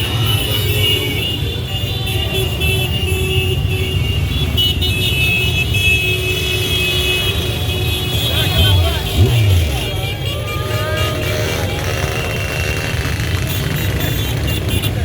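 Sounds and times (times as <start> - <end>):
motorcycle engines rumbling: 0.0 - 15.0.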